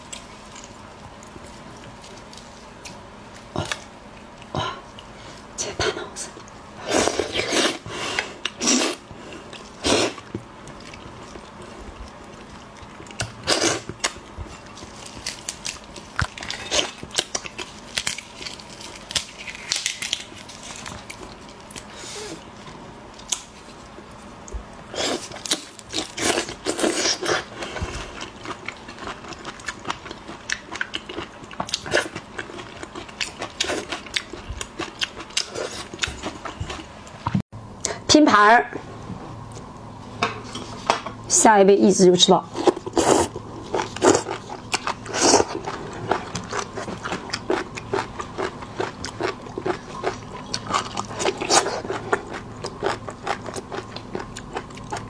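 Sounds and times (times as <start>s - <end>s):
person chewing and smacking: 8.4s - 21.9s, 24.4s - 37.4s, 42.6s - 55.0s.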